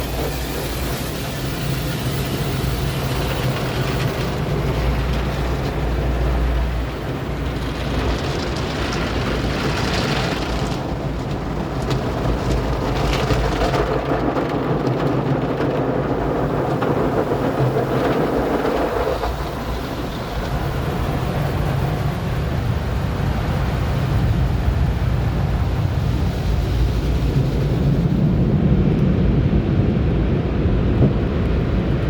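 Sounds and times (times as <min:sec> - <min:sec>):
water spraying onto car: 0:00.0 - 0:22.8
low machine rumble: 0:00.0 - 0:32.0.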